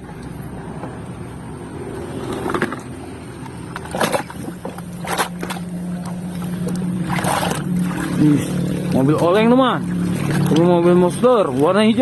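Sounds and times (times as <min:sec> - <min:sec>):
low steady hum: 0:00.0 - 0:12.0
sharp splashes or knocks: 0:03.7 - 0:11.2
water running and splashing: 0:03.9 - 0:12.0.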